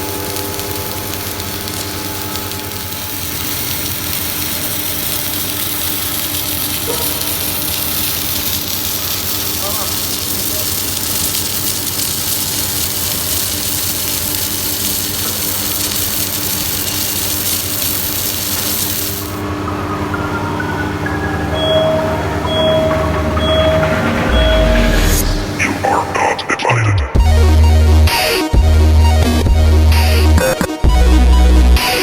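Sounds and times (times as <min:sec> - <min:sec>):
welding machine hissing: 0:00.0 - 0:19.8, 0:21.5 - 0:30.6
low hum: 0:19.2 - 0:30.0
rising series of tones: 0:19.4 - 0:29.5.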